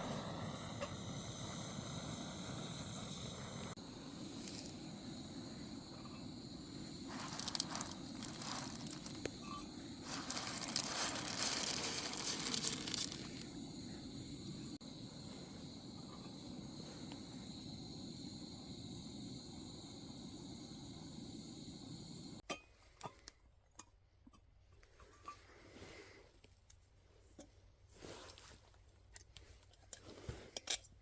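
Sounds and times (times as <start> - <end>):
insects chirring: 0.0 - 22.4
rustling and crunching: 7.0 - 13.6.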